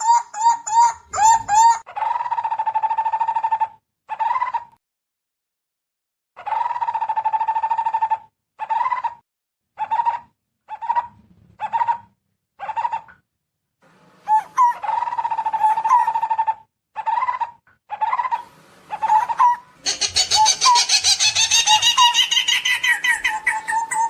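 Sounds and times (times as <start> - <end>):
barbet trilling call: 19.0 - 24.0.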